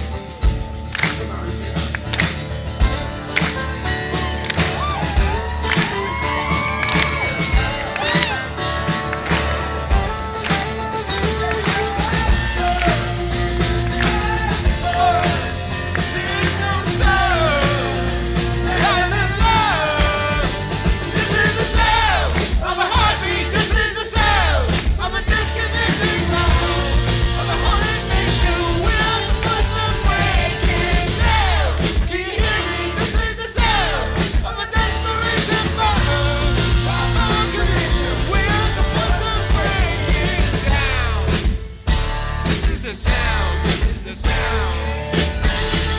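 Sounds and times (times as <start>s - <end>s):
acoustic rock band playing live: 0.0s - 45.9s
person singing: 10.0s - 41.6s.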